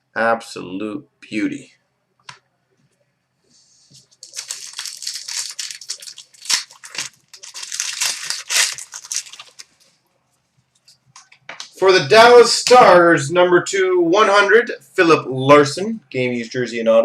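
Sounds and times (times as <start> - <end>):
plastic wrapping crackling: 4.0 - 10.0.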